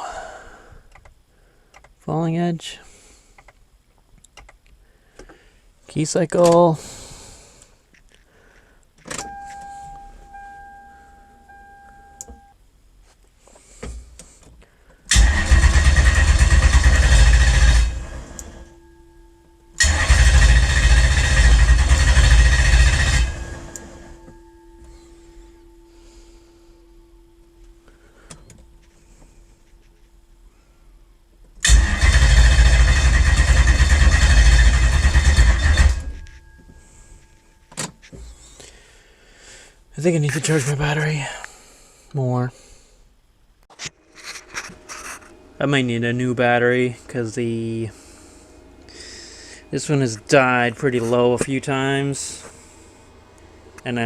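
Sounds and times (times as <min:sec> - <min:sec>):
steady electric whine: 0:00.0 - 0:54.0
starter cranking engine: 0:15.1 - 0:18.7, 0:19.8 - 0:24.1, 0:31.6 - 0:36.3.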